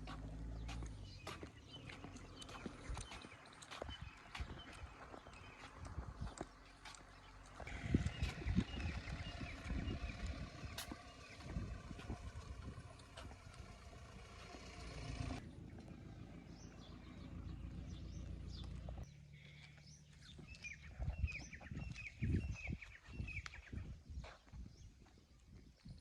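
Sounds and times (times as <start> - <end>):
engine running: 0.0 - 19.6.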